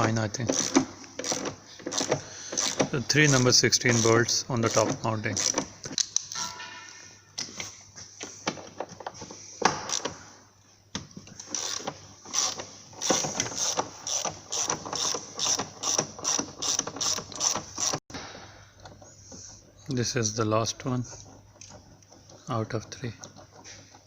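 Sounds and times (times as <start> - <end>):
socket ratchet clicking: 11.4 - 18.0.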